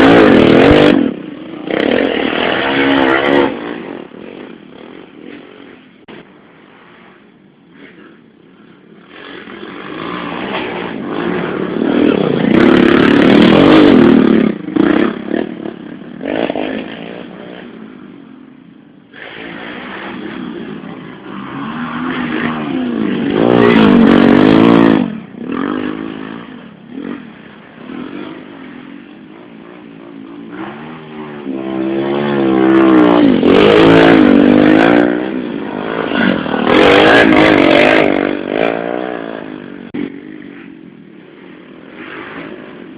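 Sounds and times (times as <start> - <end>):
motorcycles racing past: 0.0 - 42.9.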